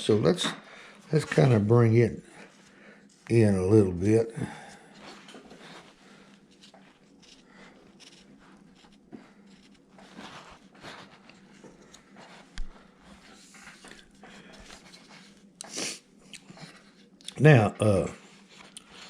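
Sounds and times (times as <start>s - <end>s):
carving blade scraping wood: 6.5s - 11.5s.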